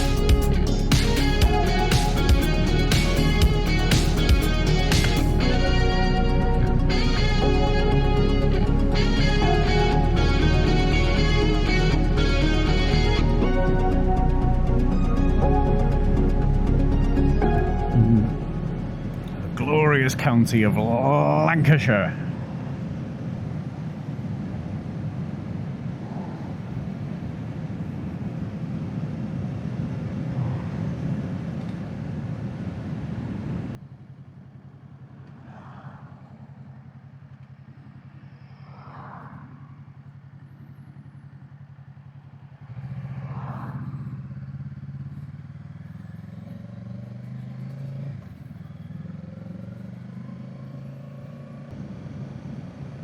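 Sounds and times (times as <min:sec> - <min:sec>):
wind noise: 0:22.4 - 0:33.7
motorcycle engine running: 0:33.8 - 0:35.4, 0:39.7 - 0:53.0.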